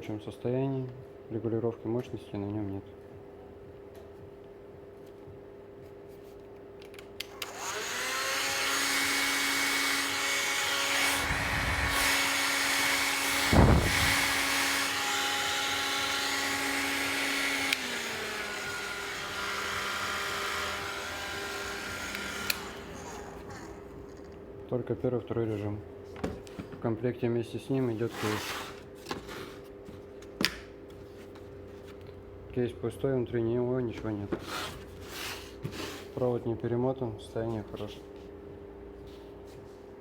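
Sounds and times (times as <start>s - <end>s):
heat gun fan whine: 6.8s - 26.7s
air buffeting microphone: 13.5s - 14.2s.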